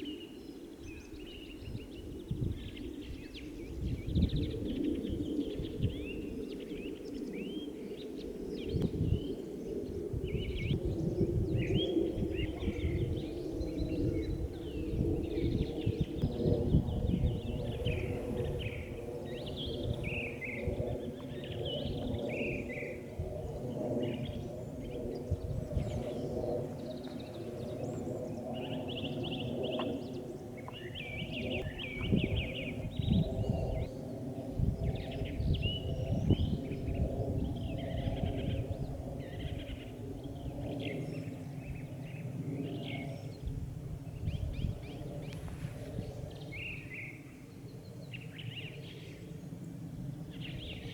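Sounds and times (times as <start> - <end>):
low hum of held tones: 0.0 - 50.9
songbirds chirping: 0.0 - 50.9
wind on microphone: 0.0 - 50.9.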